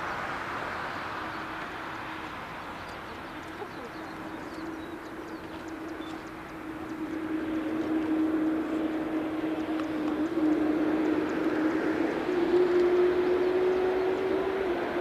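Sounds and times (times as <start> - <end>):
jet engines whining: 0.0 - 15.0
rushing noise: 4.8 - 15.0.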